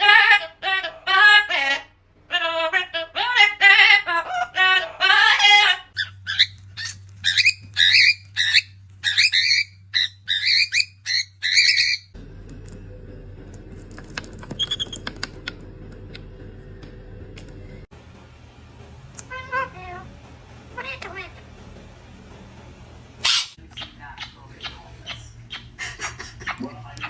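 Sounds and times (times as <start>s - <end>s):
parrot chirping and whistling: 5.2s - 12.2s, 14.6s - 15.2s, 23.2s - 26.6s
steady low hum: 5.8s - 27.0s.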